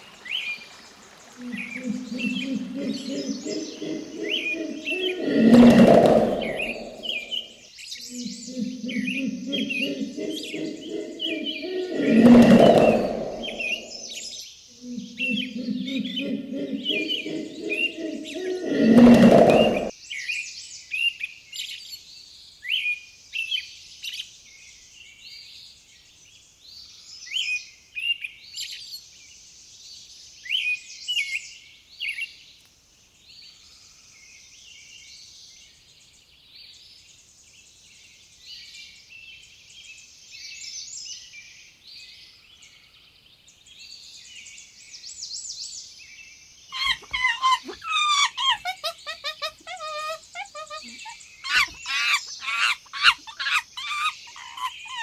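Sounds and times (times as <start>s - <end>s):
loud low repeated bird calling: 0.0s - 19.9s, 46.8s - 55.0s
small birds chirping and twittering: 0.0s - 21.0s, 31.9s - 55.0s.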